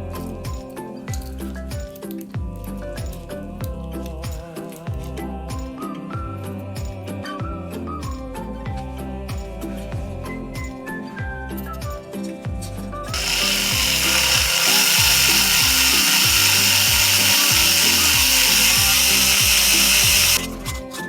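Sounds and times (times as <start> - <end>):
music with steady beat: 0.0 - 21.0
loud steady hiss: 13.1 - 20.5.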